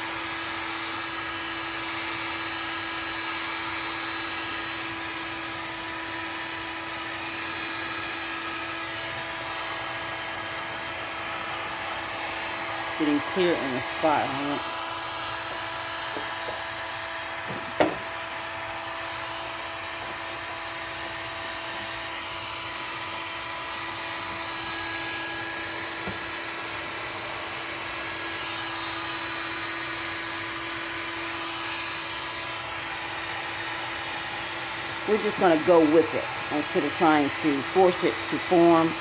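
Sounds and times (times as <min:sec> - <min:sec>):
heat gun fan whining: 0:00.0 - 0:39.0
short knock: 0:17.5 - 0:18.1.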